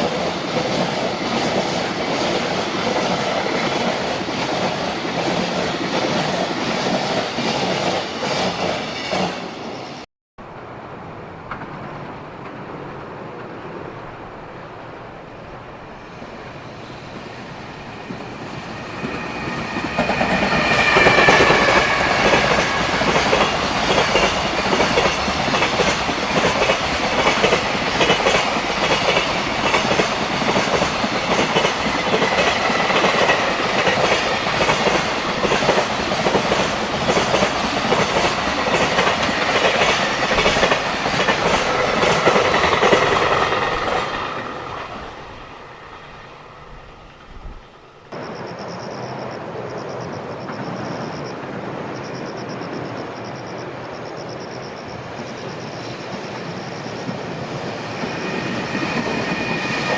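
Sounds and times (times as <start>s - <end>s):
locomotive whine: 8.8s - 59.9s
train wheels clattering: 16.2s - 47.9s.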